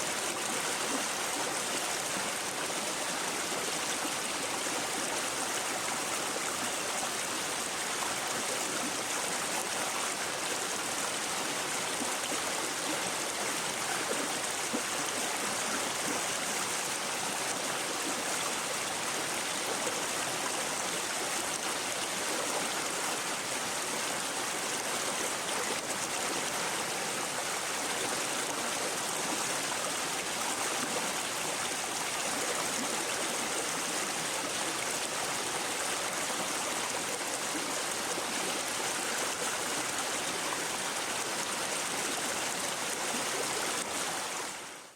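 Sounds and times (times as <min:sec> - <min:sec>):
brook babbling over stones: 0:00.0 - 0:44.9.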